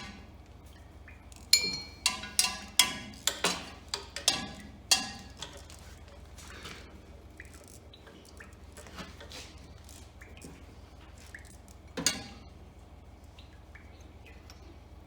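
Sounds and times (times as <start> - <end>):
steady low hum: 0.0 - 15.0
hand tools clicking on metal: 1.6 - 5.6.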